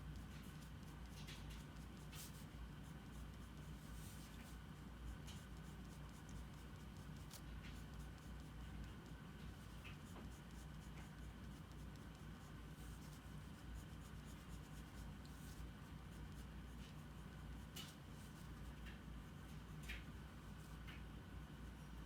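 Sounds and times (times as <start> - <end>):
steady low hum: 0.0 - 22.0
drawing tool scratching paper: 10.0 - 16.4.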